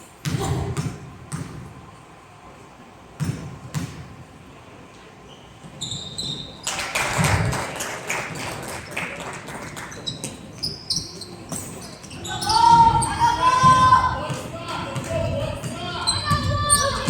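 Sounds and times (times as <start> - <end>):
basketball bouncing on court: 0.2 - 1.6, 3.2 - 4.1, 11.5 - 17.0
shoe squeaks: 5.3 - 6.6, 9.9 - 13.6, 16.0 - 17.0
voices: 11.2 - 17.0
loud shout: 12.2 - 17.0.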